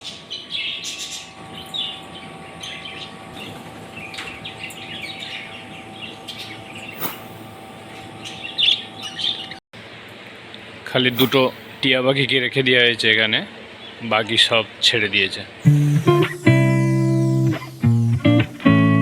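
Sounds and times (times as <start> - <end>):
small birds chirping: 0.0 - 9.6, 11.1 - 11.9
faint steady hum: 15.6 - 19.0.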